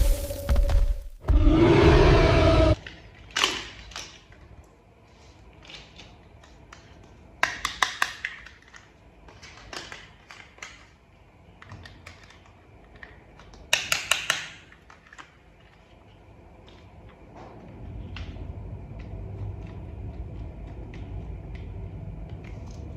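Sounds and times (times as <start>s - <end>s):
plastic parts tapping and rattling: 5.6s - 11.0s
plastic toy parts clicking: 5.6s - 11.0s, 11.6s - 15.8s.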